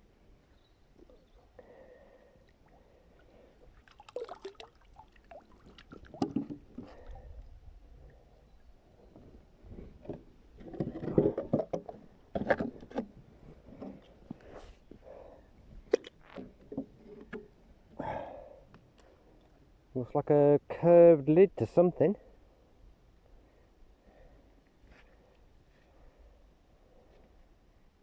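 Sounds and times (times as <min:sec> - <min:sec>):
splashes of water: 0:03.6 - 0:07.1.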